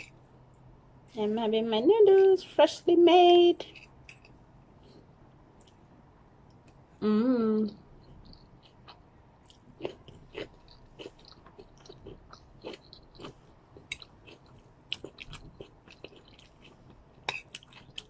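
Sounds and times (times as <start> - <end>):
person chewing noodles: 7.7 - 18.0.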